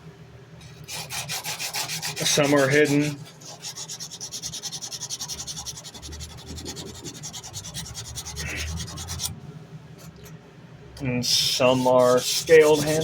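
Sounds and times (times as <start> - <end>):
sandpaper rubbing on steel blade: 0.8 - 9.3, 11.4 - 13.0.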